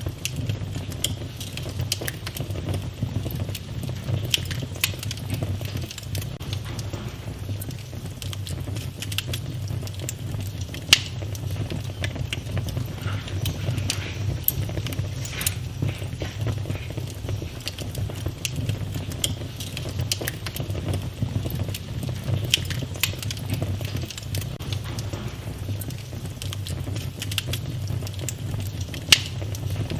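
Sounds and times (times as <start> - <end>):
wood fire crackling and popping: 0.0 - 29.9
low rumble: 6.2 - 18.2, 24.4 - 27.0.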